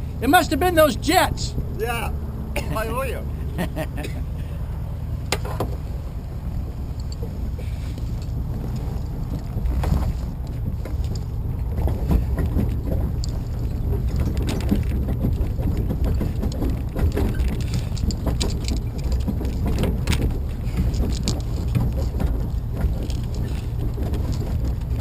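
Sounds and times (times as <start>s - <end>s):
tow vehicle rumbling: 0.0s - 25.0s
knocks and rattles: 8.0s - 25.0s.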